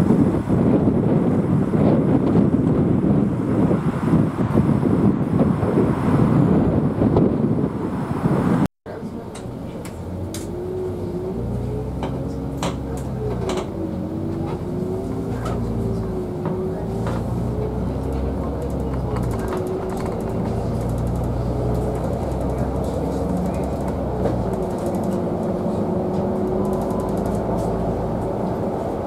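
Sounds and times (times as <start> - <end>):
vehicle hum with wavering tone: 0.0 - 29.0
scattered clicks: 23.3 - 25.6, 26.4 - 27.6.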